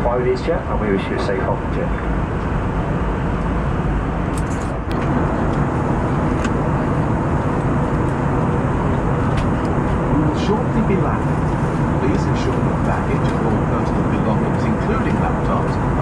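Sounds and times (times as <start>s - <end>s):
airliner cabin engine and airflow: 0.0s - 16.0s.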